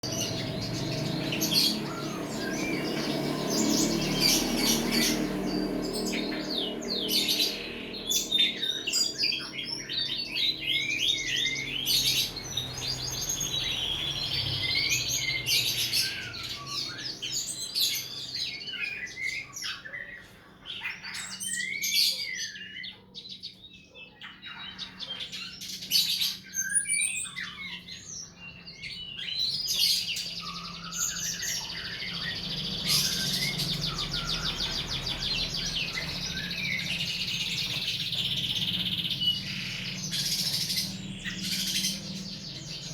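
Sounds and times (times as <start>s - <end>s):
buzzy bird trill: 0.0s - 19.8s
songbird whistling and chirping: 0.0s - 42.9s.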